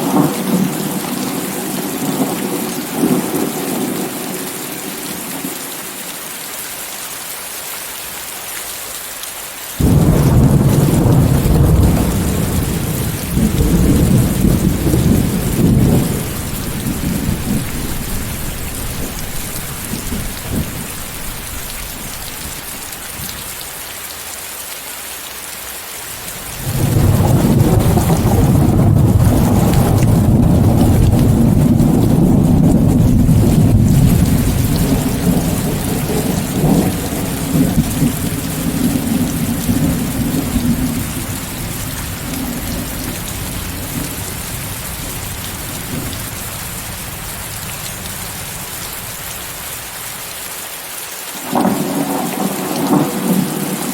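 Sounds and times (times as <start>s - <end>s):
heavy rain hissing: 0.0s - 53.9s
thunder rumbling: 9.8s - 23.6s, 26.3s - 49.6s, 51.4s - 53.9s.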